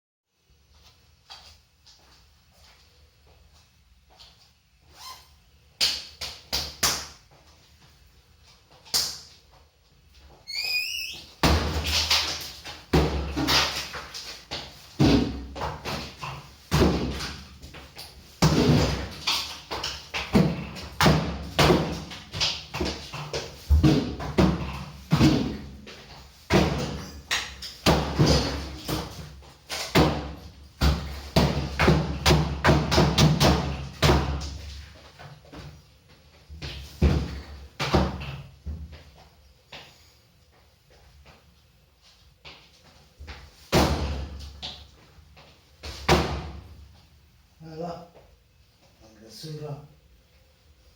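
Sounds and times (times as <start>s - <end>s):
bangs and knocks against fridge: 26.5s - 29.2s, 45.9s - 46.7s.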